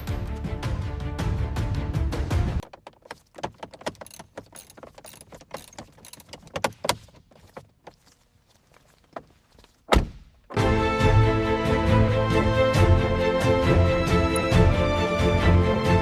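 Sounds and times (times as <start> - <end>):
light clicks and knocks: 2.6 - 9.9.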